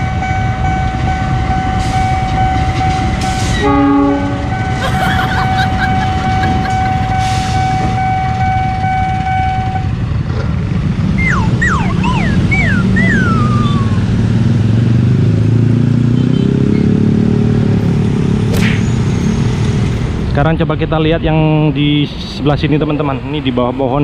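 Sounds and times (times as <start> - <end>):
vehicle engines pulling away: 4.6 - 24.0
steady tone: 11.1 - 14.3
short falling whistles: 11.2 - 14.0.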